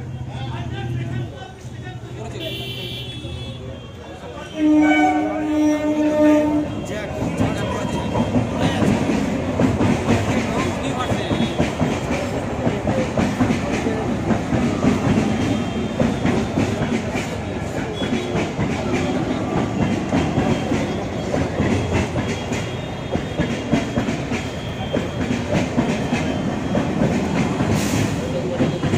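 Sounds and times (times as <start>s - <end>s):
train wheels clattering over rail joints: 5.9s - 28.9s.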